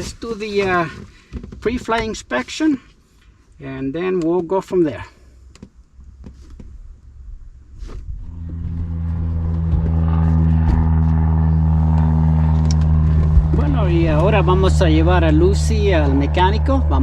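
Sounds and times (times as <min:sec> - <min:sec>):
engine hum: 0:05.0 - 0:17.0.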